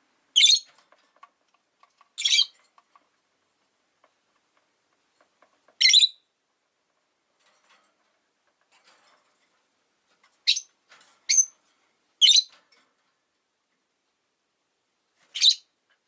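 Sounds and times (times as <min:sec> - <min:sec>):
lovebirds chirping: 0:00.3 - 0:00.7, 0:02.1 - 0:02.6, 0:05.8 - 0:06.3, 0:10.4 - 0:10.7, 0:11.3 - 0:11.6, 0:12.2 - 0:12.6, 0:15.3 - 0:15.7.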